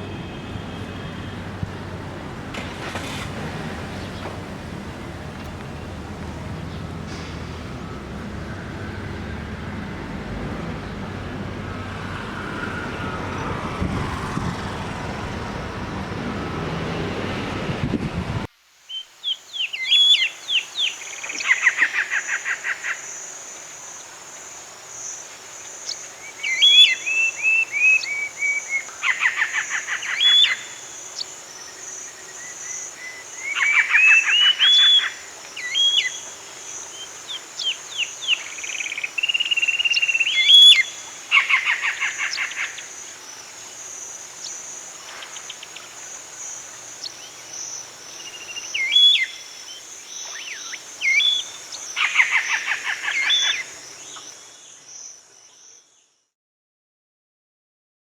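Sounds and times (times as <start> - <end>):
songbird chirping and trilling: 18.9 - 24.1, 25.0 - 56.2
high insect drone: 19.2 - 56.0.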